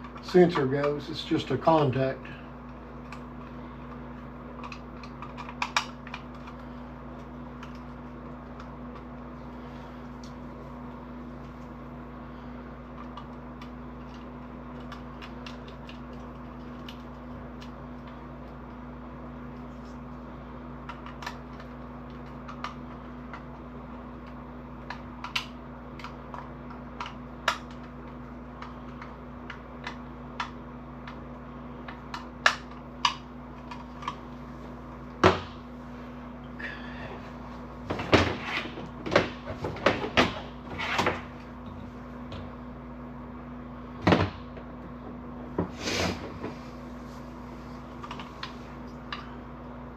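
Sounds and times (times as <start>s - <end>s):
clicks and taps of wiring parts: 0.0s - 1.1s
steady low hum: 0.0s - 49.9s.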